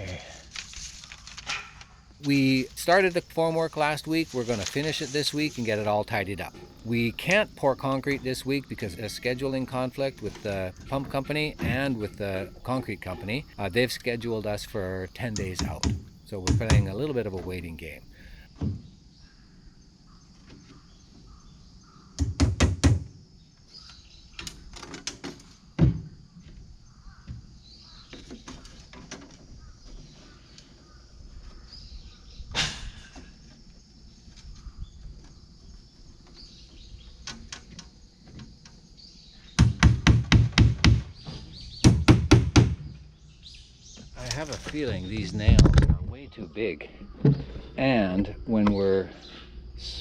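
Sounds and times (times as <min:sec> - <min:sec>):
hammer driving nails into wood: 0:39.6 - 0:43.0.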